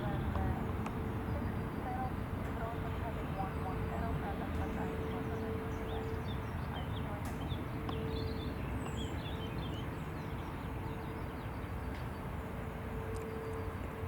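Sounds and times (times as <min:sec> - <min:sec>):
low outdoor rumble: 0:00.0 - 0:14.0
small birds chirping: 0:04.7 - 0:12.3.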